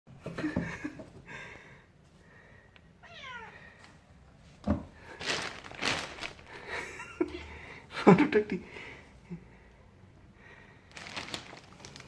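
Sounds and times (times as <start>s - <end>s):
kitten meowing: 3.0s - 3.6s.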